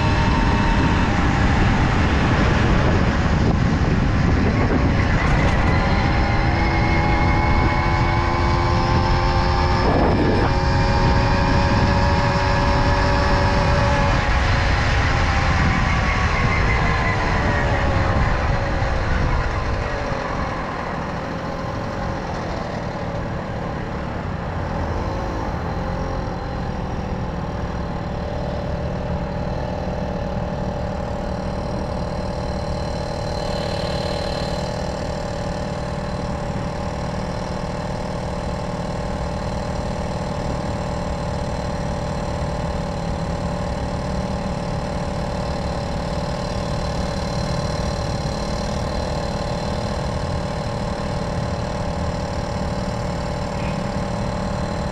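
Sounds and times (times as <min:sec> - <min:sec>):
moped engine running steadily: 0:00.0 - 0:54.9.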